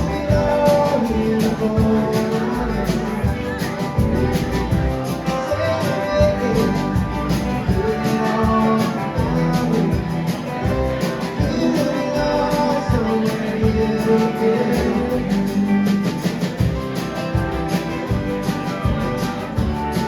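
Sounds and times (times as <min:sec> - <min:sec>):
guitars: 0:00.0 - 0:20.0
live band playing: 0:00.0 - 0:20.0.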